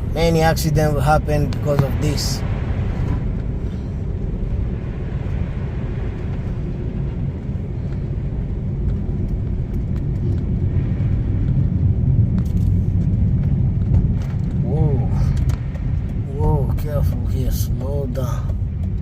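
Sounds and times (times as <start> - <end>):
car driving on snowy road: 0.0 - 19.0.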